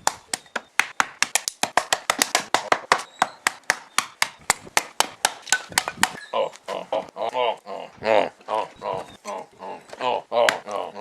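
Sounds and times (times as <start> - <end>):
person making rapid clicks: 0.0 - 6.2.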